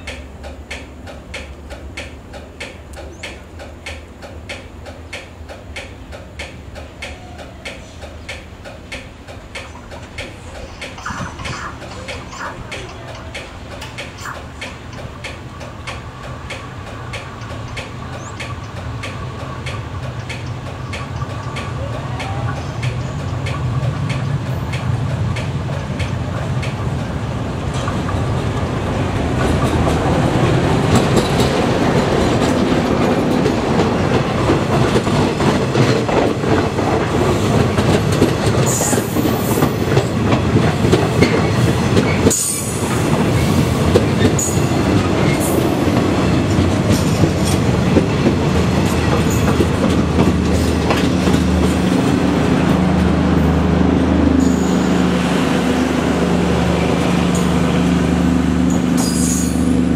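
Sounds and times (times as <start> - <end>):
clickety-clack of train wheels: 0.0 - 59.9
train rumbling past: 0.0 - 59.9
high wheel squeals: 58.7 - 59.9.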